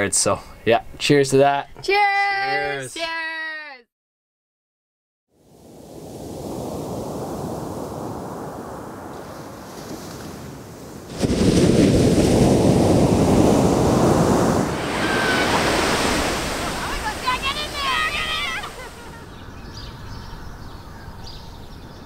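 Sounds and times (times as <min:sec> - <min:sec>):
surf breaking on pebble beach: 0:05.9 - 0:19.2.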